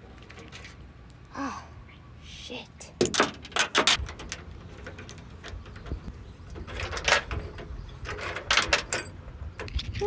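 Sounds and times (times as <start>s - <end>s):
metal chain clinking and rattling: 6.6s - 9.2s.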